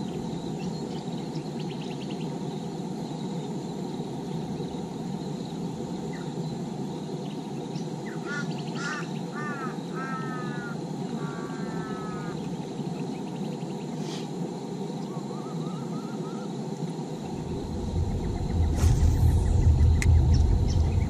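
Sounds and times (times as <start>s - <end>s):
bird harsh calls: 8.0s - 12.8s
low rushing noise: 17.1s - 21.0s.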